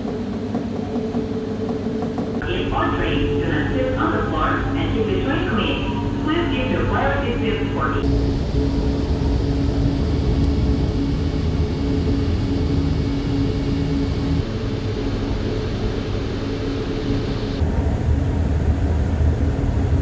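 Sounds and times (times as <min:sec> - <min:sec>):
train motor hum: 0:02.4 - 0:08.0.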